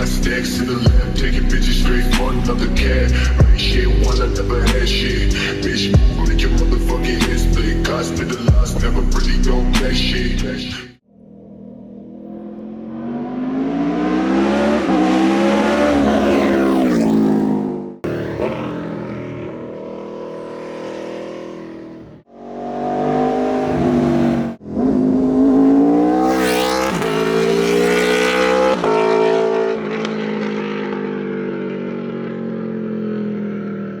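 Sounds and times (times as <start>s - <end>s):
motorcycle engine revving: 11.0s - 34.0s.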